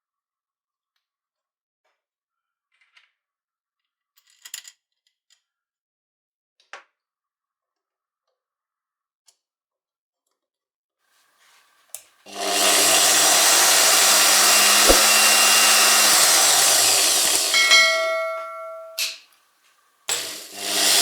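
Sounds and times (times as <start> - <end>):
hammer drill clicks and rattles: 12.3 - 19.2, 20.1 - 21.0.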